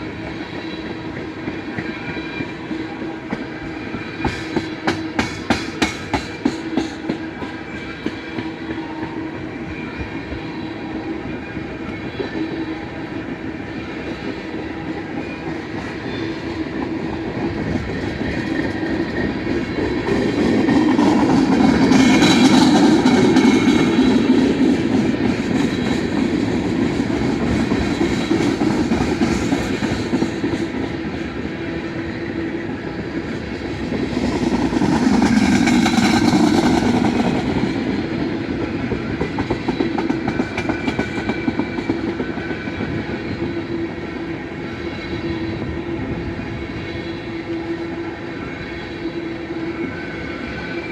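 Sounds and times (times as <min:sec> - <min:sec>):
freight train rumbling past: 0:00.0 - 0:50.9.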